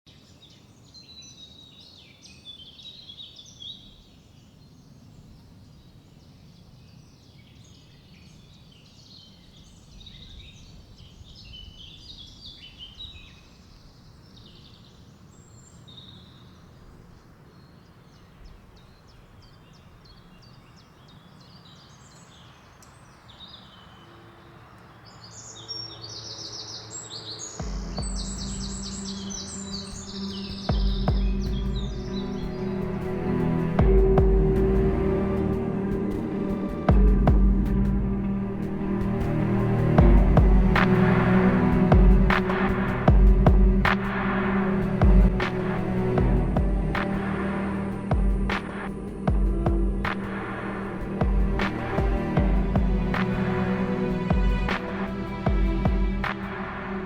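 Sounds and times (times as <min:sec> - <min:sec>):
small birds chirping and singing: 0:00.1 - 0:57.0
low background rumble: 0:27.6 - 0:57.0
steady low-pitched sound: 0:27.6 - 0:57.0.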